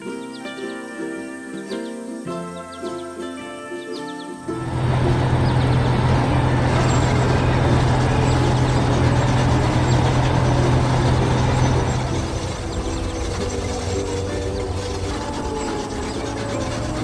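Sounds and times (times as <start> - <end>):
heavy vehicle engine humming: 4.5 - 17.0.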